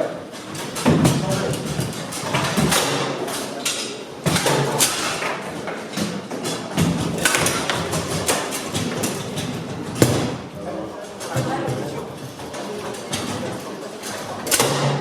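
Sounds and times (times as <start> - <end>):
table football rods and ball clacking: 0.4 - 10.5.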